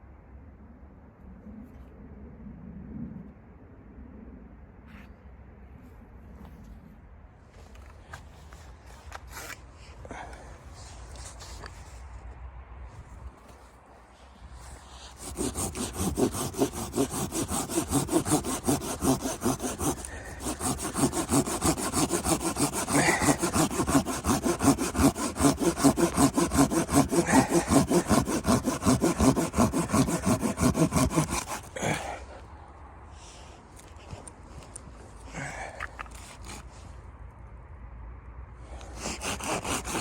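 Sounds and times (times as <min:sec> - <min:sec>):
hand saw cutting wood: 0:08.9 - 0:12.0, 0:14.6 - 0:32.4, 0:35.4 - 0:36.9, 0:38.7 - 0:40.0.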